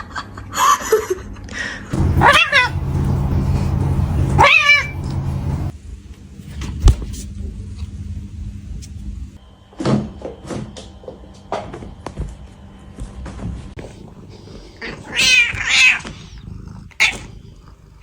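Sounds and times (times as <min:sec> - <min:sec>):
cat growling: 0:02.0 - 0:05.7, 0:13.9 - 0:18.0
cat yowling: 0:02.0 - 0:05.7, 0:14.8 - 0:16.4.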